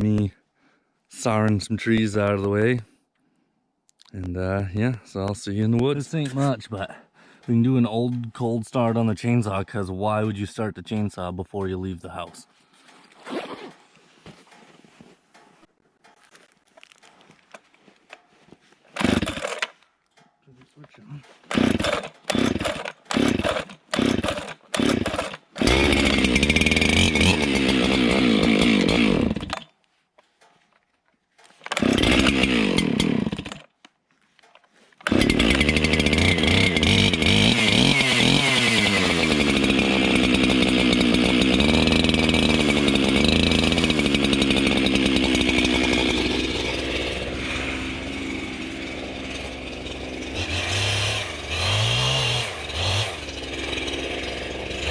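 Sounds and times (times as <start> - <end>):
chainsaw engine running: 5.8 - 9.1, 19.0 - 19.8, 21.1 - 29.7, 31.6 - 33.8, 35.0 - 54.9
starter cord pulls: 18.9 - 54.9.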